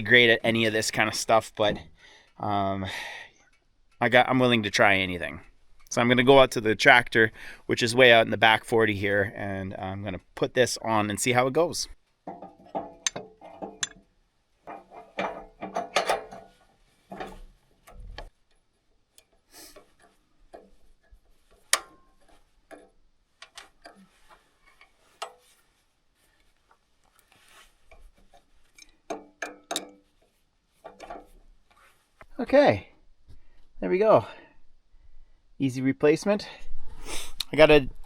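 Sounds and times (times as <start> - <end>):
metal knocks and clinks: 12.2 - 14.1, 14.7 - 18.3, 28.0 - 30.1.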